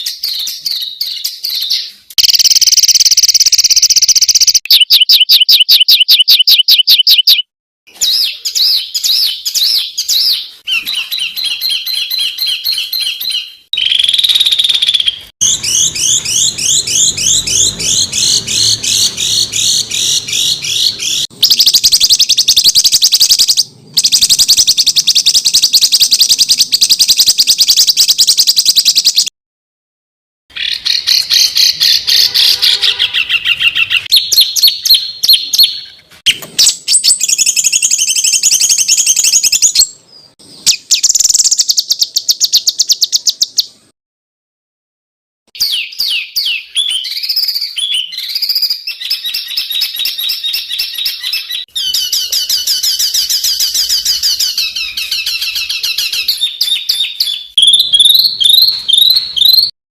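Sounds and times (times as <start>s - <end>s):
songbird trills and chattering: 0.0s - 7.4s, 45.6s - 59.7s.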